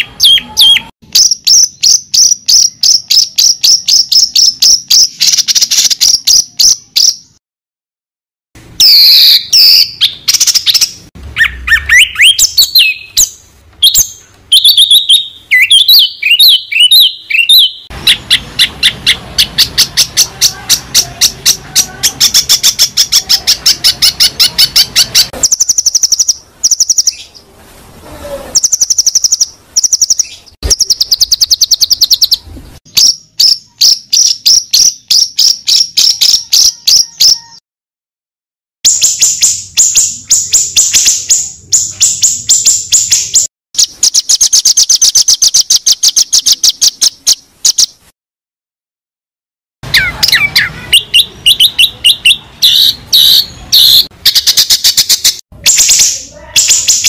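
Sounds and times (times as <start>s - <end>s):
songbird trilling: 8.8s - 27.4s, 28.6s - 37.6s, 49.9s - 57.0s.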